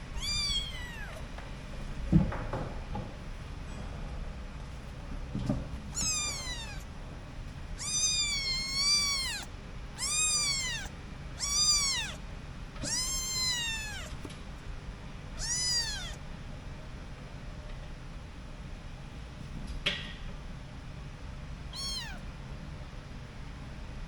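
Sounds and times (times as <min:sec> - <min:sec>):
kitten meowing: 0:00.2 - 0:01.2, 0:05.9 - 0:06.9, 0:07.8 - 0:12.2, 0:12.8 - 0:14.2, 0:15.4 - 0:16.2, 0:21.7 - 0:22.3.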